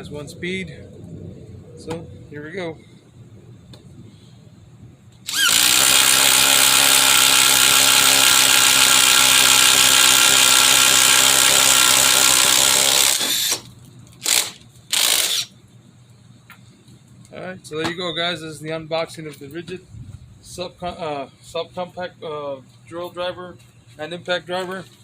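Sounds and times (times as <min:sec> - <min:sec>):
impact driver running: 0:05.3 - 0:15.5.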